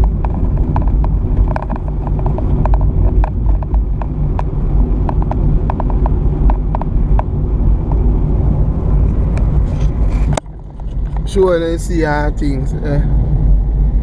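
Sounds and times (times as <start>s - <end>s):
clicks and rattles: 0.0s - 7.3s
car driving on rough road: 0.0s - 14.0s.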